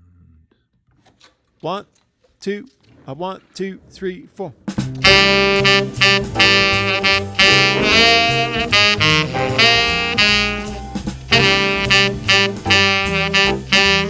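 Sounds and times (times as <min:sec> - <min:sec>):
walking bass: 0:02.5 - 0:14.0
drums: 0:03.8 - 0:14.0
saxophone playing jazz: 0:04.8 - 0:14.0.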